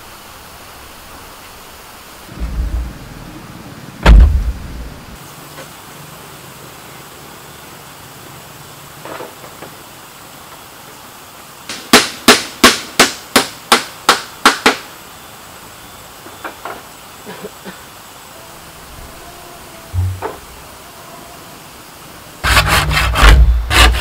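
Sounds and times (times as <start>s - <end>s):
hammer blows: 19.9s - 20.7s.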